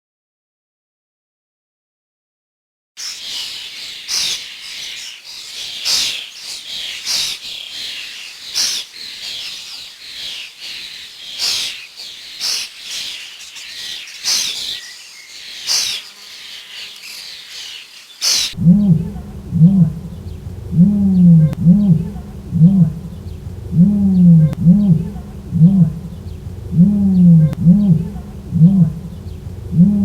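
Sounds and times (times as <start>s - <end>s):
birds chirping: 13.2s - 30.0s.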